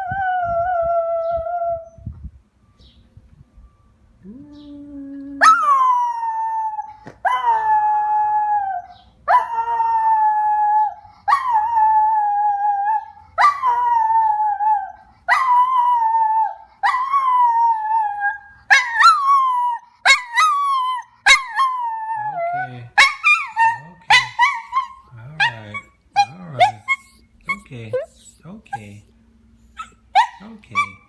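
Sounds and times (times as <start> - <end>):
dog howling: 4.3 - 27.7.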